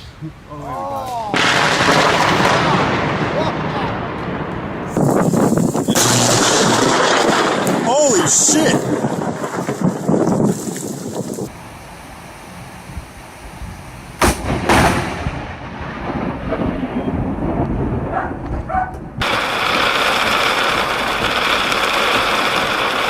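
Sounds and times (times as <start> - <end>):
thunder crack: 1.3 - 11.5, 14.2 - 23.0
thunder rumble: 1.3 - 23.0
loud steady hiss: 4.9 - 8.8, 19.2 - 23.0.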